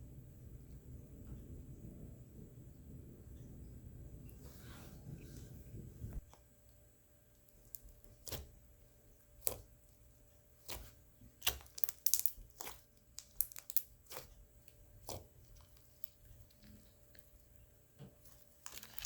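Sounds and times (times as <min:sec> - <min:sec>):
slime sticky clicks and crackles: 0:10.6 - 0:17.4, 0:18.2 - 0:19.0.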